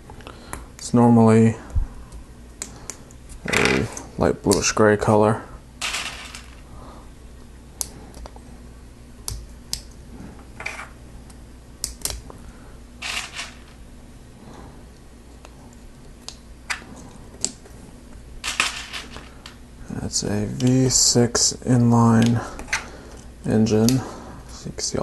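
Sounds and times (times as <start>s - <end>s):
loose parts rattling: 13.0s - 13.8s, 18.4s - 19.6s.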